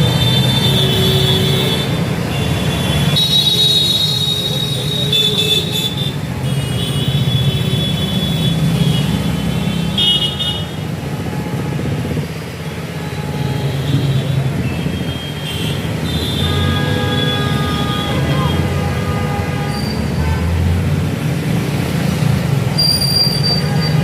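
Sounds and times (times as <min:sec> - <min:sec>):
vehicle engines running: 0:00.0 - 0:10.2
car horns tooting: 0:00.0 - 0:12.2, 0:12.8 - 0:20.6, 0:22.8 - 0:24.0.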